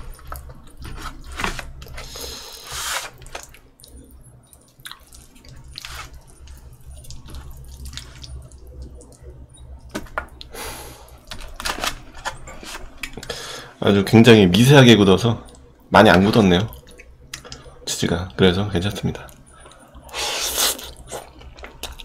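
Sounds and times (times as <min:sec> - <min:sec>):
wet chewing: 0:03.1 - 0:09.4.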